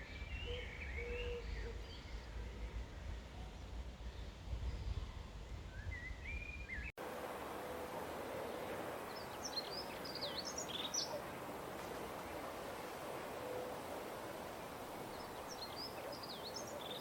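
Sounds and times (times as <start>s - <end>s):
songbirds chirping: 0.0s - 17.0s
even hiss: 7.0s - 17.0s
faint hum: 7.0s - 17.0s.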